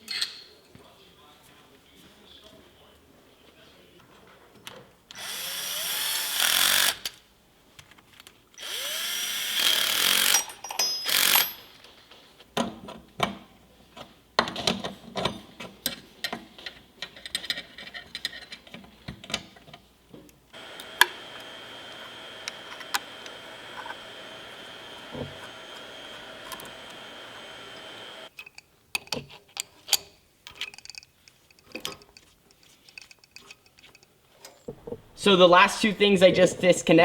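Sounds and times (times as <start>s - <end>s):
power driver running: 8.6s - 10.4s, 20.5s - 28.3s
hand tools clinking and knocking: 10.1s - 12.7s
steady hum with high whine: 20.6s - 28.3s.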